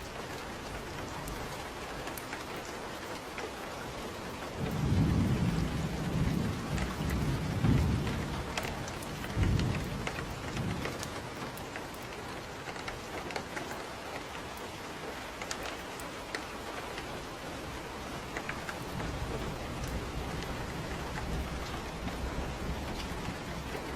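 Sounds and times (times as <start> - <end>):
steady rain: 0.0 - 23.9
thunder rumbling: 4.0 - 13.6, 16.3 - 23.9.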